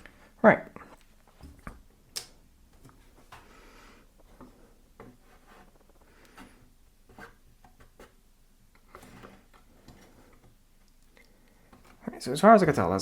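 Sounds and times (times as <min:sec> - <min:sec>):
wood scraping: 0:02.7 - 0:12.8.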